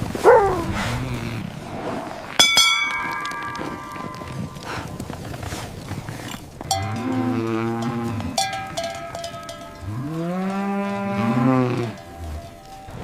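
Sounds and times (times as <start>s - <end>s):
sharp clanks: 2.4s - 13.0s
cow mooing: 6.7s - 13.0s.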